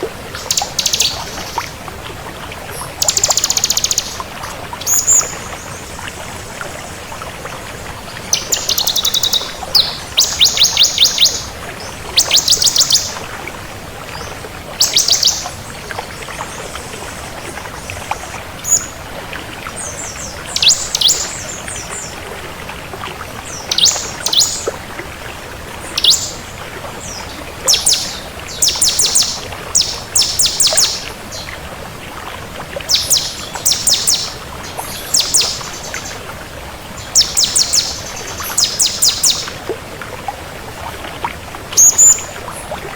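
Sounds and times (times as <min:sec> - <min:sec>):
steady background hiss: 0:00.0 - 0:42.8
bird singing rapid high trills: 0:00.4 - 0:01.6, 0:03.0 - 0:04.2, 0:08.4 - 0:11.6, 0:12.2 - 0:13.2, 0:14.8 - 0:15.6, 0:23.7 - 0:24.6, 0:26.0 - 0:26.4, 0:27.1 - 0:31.5, 0:32.9 - 0:36.2, 0:37.0 - 0:39.5.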